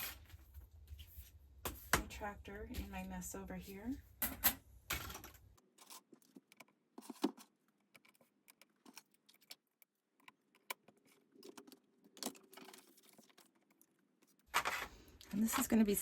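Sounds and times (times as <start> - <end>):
craft supplies clicking and rustling: 4.3 - 16.0.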